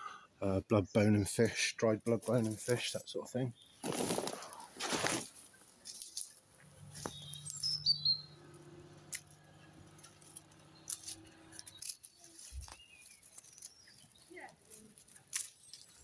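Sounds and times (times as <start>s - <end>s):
small birds chirping: 1.8s - 16.0s
pruning shears clicking: 8.4s - 16.0s.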